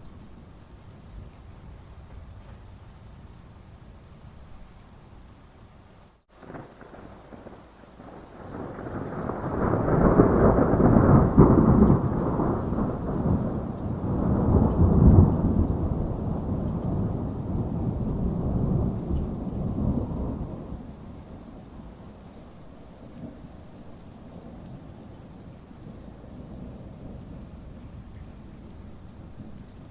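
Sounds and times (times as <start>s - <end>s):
steady rain: 0.0s - 29.9s
thunder rumbling: 6.4s - 29.9s.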